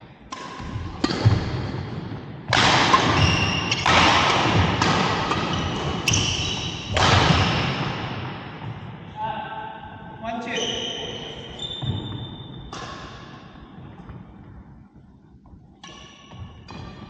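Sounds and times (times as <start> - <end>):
racket hitting shuttlecock: 0.3 - 8.9
shoe squeaks: 3.1 - 3.9, 5.3 - 7.6, 10.4 - 12.8.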